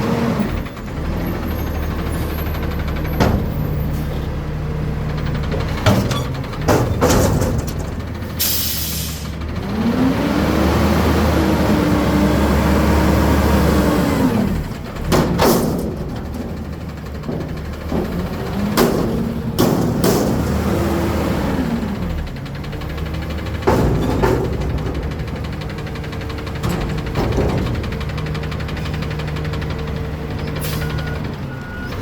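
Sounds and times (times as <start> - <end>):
garbage truck engine revving: 0.0 - 32.0
sharp metallic bangs: 14.4 - 30.0.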